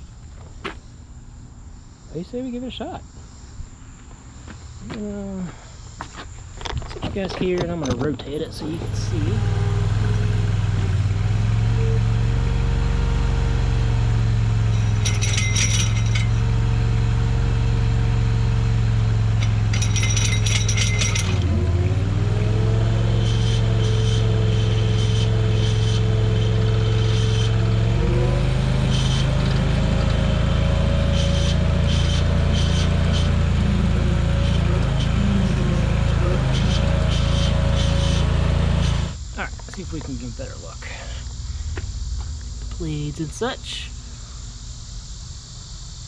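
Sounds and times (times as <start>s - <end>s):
skid steer engine running: 7.4s - 40.1s
metallic rattling and clinking: 14.6s - 16.6s, 19.2s - 21.6s.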